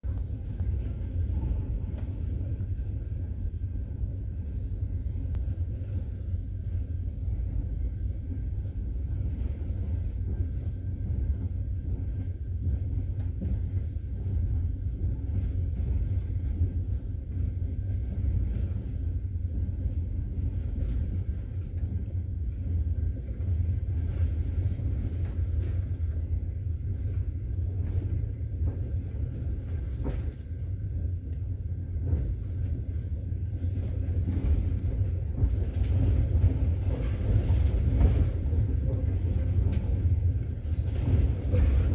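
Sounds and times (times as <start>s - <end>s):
train rumbling: 0.0s - 41.9s.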